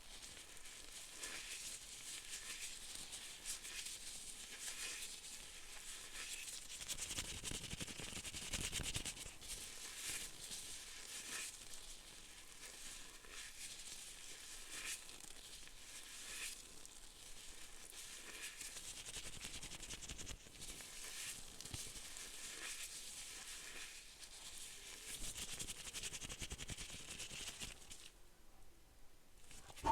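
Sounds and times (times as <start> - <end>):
close crinkling and scratching: 29.4 - 29.9.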